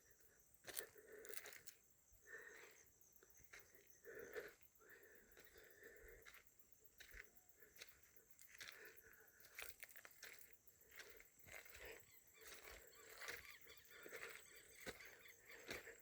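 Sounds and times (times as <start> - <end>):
faint animal calls: 7.1 - 16.0.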